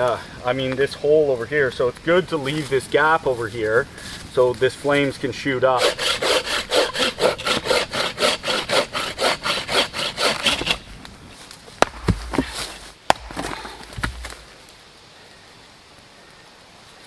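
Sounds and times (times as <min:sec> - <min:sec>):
hand saw cutting wood: 0:05.6 - 0:10.9
sharp snaps and knocks: 0:10.4 - 0:14.8.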